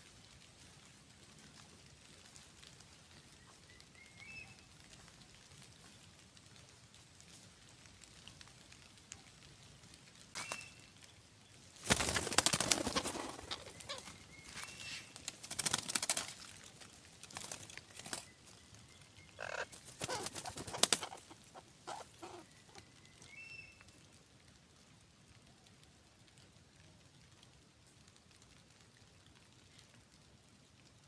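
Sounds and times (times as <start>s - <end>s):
wings flapping and rustling: 10.3s - 24.0s.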